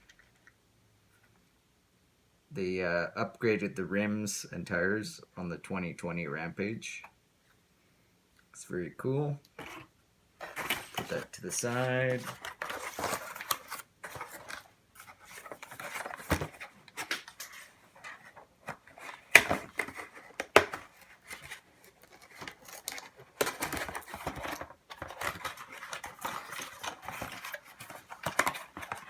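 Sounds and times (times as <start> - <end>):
packaging rustling and scraping: 9.6 - 29.0.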